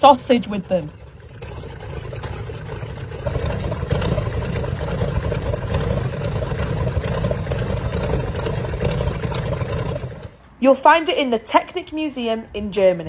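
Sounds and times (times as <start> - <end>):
aircraft engine rumbling: 0.0 - 10.4.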